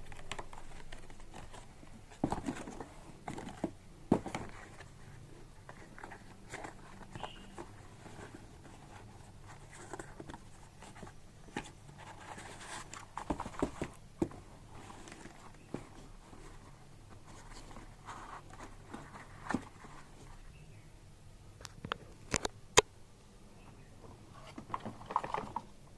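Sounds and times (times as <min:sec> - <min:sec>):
packaging clicks and rustles: 0:00.0 - 0:04.9
faint low hum: 0:00.0 - 0:25.9.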